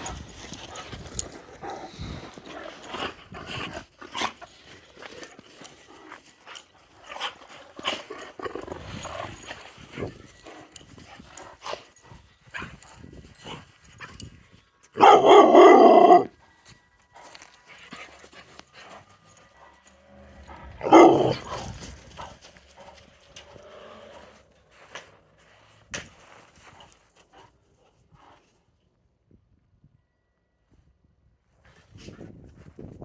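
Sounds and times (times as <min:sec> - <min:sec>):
dog claws clicking and scuffling: 0:00.0 - 0:16.3, 0:17.2 - 0:27.6
dog barking: 0:15.0 - 0:16.3, 0:20.7 - 0:21.6.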